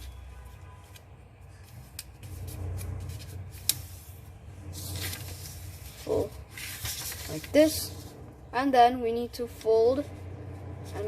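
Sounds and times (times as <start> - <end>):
paper rustling: 0.8 - 8.2
fingers rubbing along paper fold: 1.6 - 8.3
paper crackle: 4.6 - 8.2.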